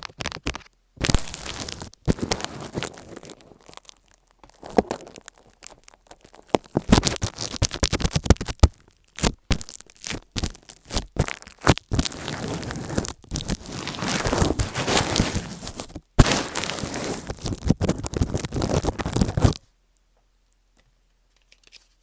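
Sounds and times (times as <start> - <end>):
earphones scratching on microphone: 0.0 - 3.6, 6.2 - 19.6.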